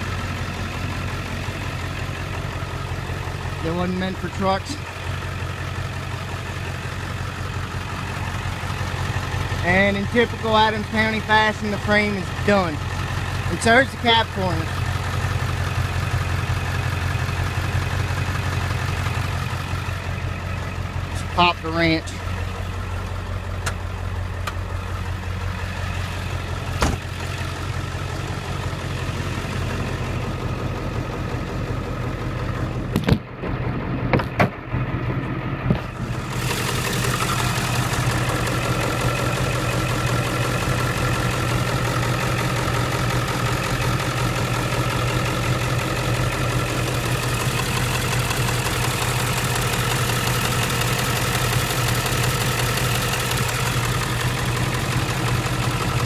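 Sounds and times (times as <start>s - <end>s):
diesel engine idling: 0.0s - 56.0s
sharp clunks: 26.8s - 27.2s.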